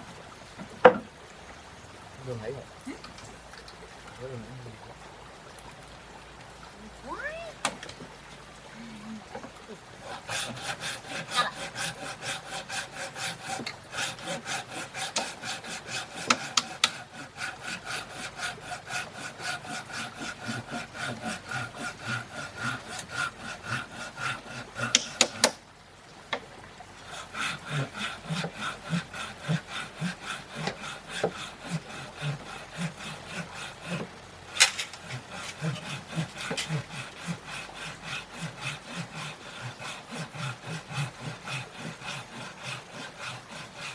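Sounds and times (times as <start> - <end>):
hand saw cutting wood: 0.6 - 1.1, 9.3 - 25.6, 27.0 - 43.9.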